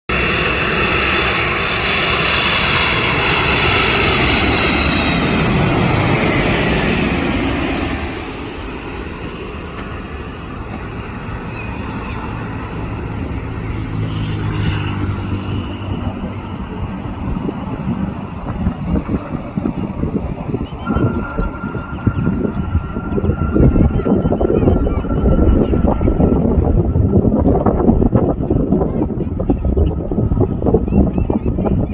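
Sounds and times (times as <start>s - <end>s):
jet engines roaring and whining: 0.1s - 31.9s.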